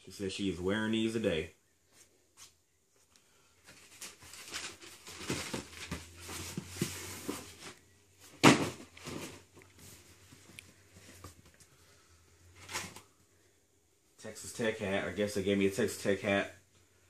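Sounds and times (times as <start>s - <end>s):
packaging rustling: 3.7s - 7.8s.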